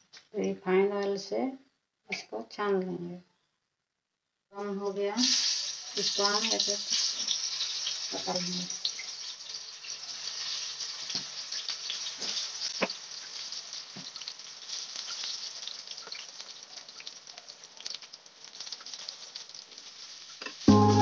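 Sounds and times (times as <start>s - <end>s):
eggplant sizzling in hot oil: 5.0s - 21.0s
sharp oil pops: 12.2s - 13.0s.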